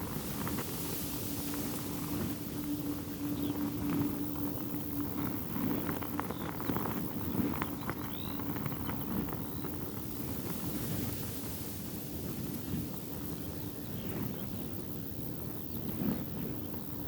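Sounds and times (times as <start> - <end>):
steady low hum: 0.0 - 17.0
wind buffeting microphone: 0.0 - 17.0.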